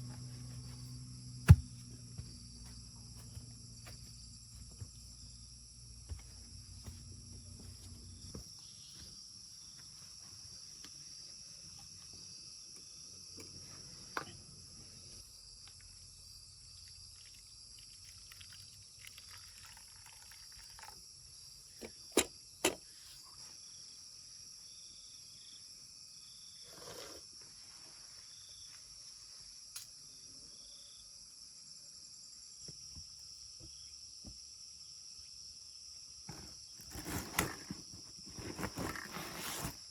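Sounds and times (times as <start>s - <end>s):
crickets chirring: 0.0s - 39.9s
sharp knocks: 1.5s - 1.8s.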